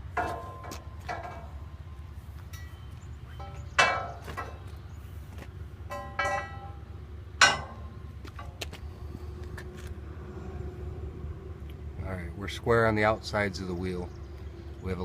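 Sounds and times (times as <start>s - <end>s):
steady low hum: 0.0s - 15.0s
steel bar clinking on metal wheel: 2.5s - 4.7s, 5.9s - 8.6s.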